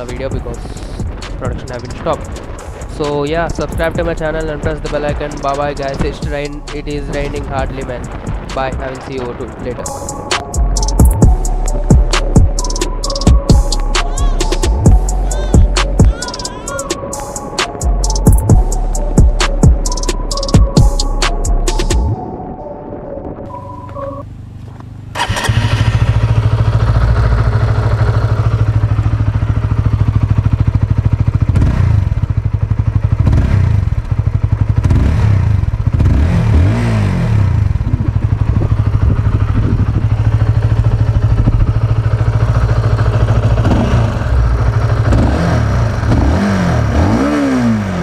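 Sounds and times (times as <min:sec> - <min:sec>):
motorcycle engine revving: 0:24.7 - 0:48.0.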